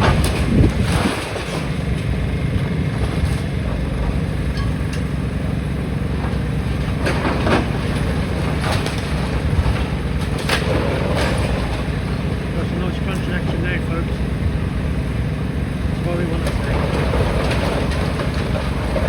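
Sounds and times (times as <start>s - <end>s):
demolition machinery engine rumble: 0.0s - 19.0s.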